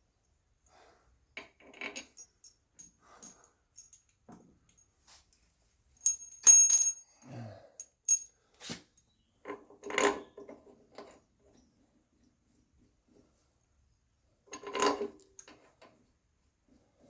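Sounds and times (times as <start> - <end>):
ringing metallic clatter: 6.0 - 7.0.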